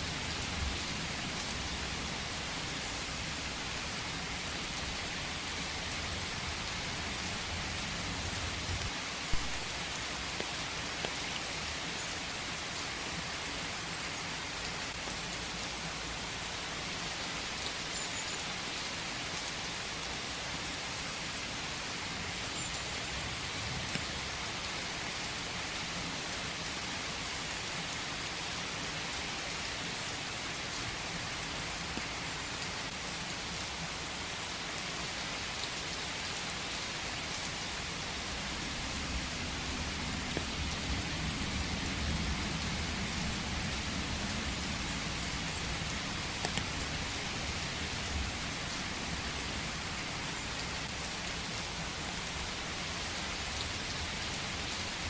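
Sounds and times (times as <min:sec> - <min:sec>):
rain falling in forest: 0:00.0 - 0:55.0
raindrops ticking: 0:46.3 - 0:46.9.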